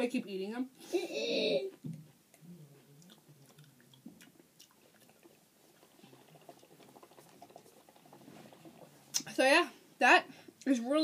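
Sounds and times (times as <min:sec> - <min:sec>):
low room hum: 0:00.0 - 0:11.0
chewing chips: 0:02.4 - 0:09.3.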